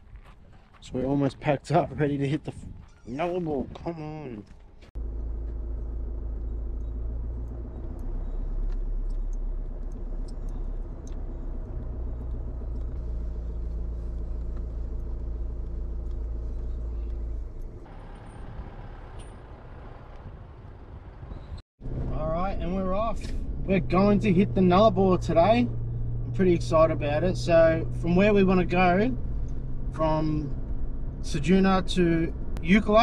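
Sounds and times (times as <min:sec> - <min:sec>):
car engine droning: 0:05.0 - 0:33.0.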